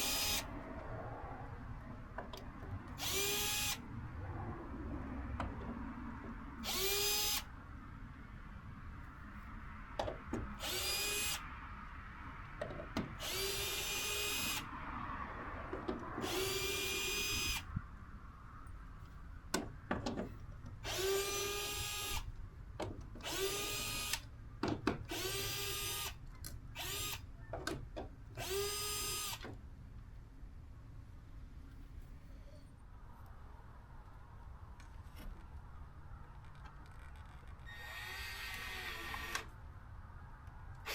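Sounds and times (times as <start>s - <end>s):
power drill running: 0.0s - 0.4s, 3.0s - 3.8s, 6.6s - 7.4s, 10.6s - 11.4s, 13.2s - 14.6s, 16.2s - 17.6s.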